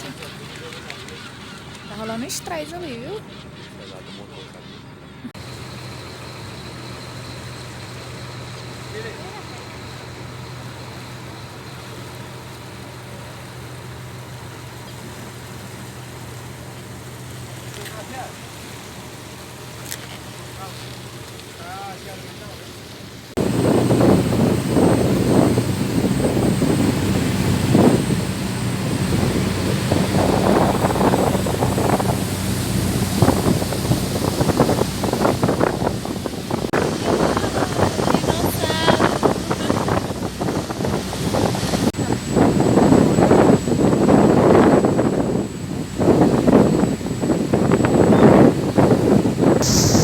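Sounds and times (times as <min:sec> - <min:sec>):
boat engine humming: 0:00.0 - 0:50.0
wind buffeting microphone: 0:23.4 - 0:50.0.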